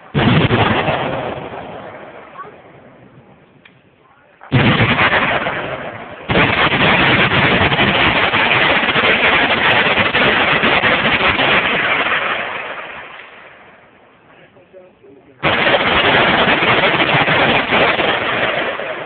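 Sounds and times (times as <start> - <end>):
machine-gun fire: 0.1 - 2.1, 4.5 - 13.0, 15.4 - 19.0.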